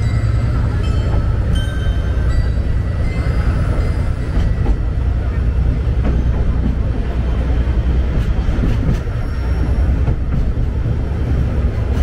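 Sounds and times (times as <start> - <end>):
train carriage low rumble: 0.0 - 12.0.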